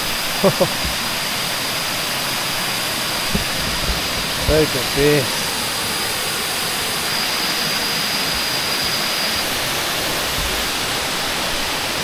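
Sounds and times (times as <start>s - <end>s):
waterfall rushing: 0.0s - 12.0s
thin high steady tone: 7.0s - 12.0s.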